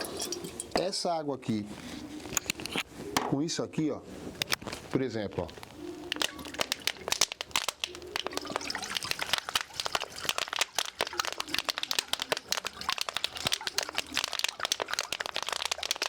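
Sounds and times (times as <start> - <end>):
water sloshing in metal bottle: 0.0 - 0.9, 5.9 - 16.0
metal bottle crackling: 0.0 - 1.0, 4.4 - 16.0.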